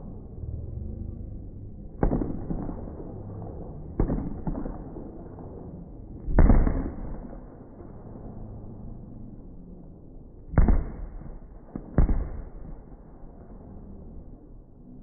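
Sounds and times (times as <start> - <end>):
firework bangs: 3.9 - 5.7, 6.3 - 7.5, 10.6 - 13.0.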